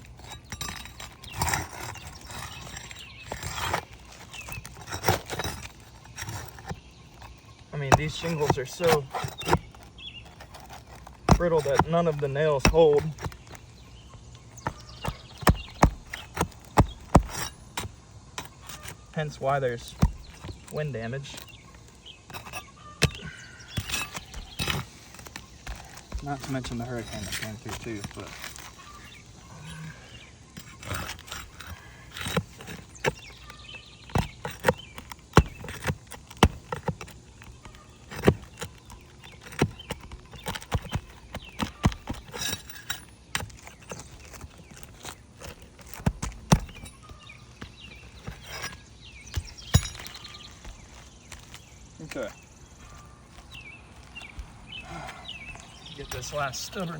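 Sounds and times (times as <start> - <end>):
tool knocking on roof shingles: 14.4 - 18.9, 19.8 - 20.7, 30.6 - 51.6.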